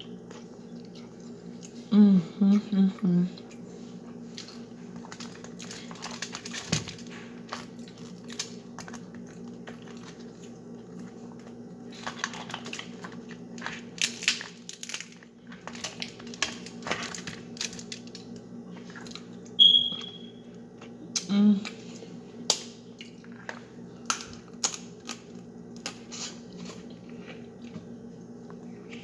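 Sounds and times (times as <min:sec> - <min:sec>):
crab legs cracking: 0:04.4 - 0:19.5, 0:22.4 - 0:27.0.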